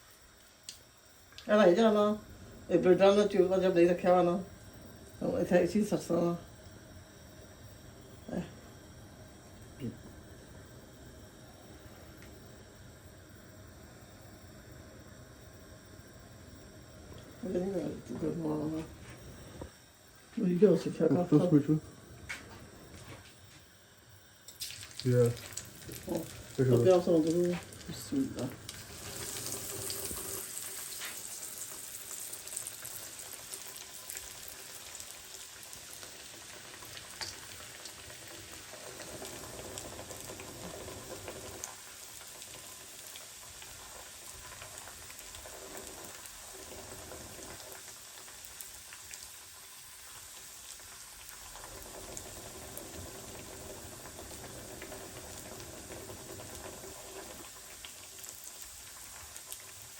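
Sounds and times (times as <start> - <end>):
food sizzling in hot oil: 23.8 - 59.9.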